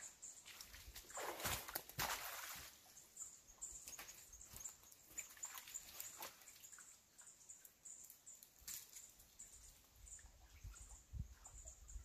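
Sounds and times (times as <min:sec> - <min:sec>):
faint high bird chirps: 0:02.8 - 0:12.0.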